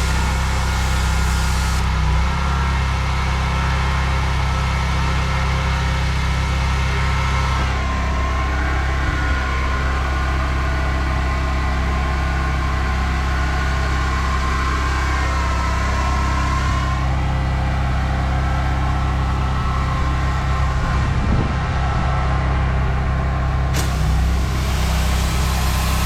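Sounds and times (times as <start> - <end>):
water spray hissing: 0.0 - 1.9, 23.8 - 26.0
pressure washer engine running: 0.0 - 26.0.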